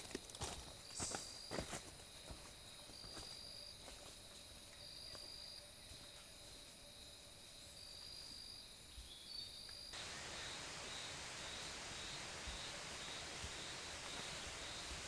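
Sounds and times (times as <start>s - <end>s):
insects trilling: 0.0s - 15.0s
pulsing insect call: 9.4s - 15.0s
even hiss: 9.9s - 15.0s.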